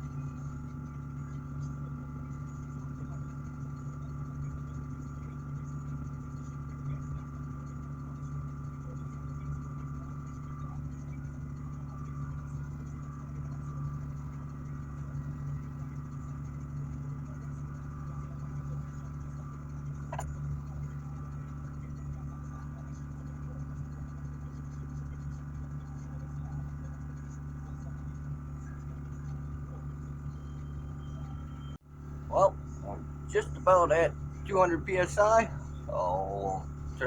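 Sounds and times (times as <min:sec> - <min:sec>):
air compressor running: 0:32.0 - 0:37.0.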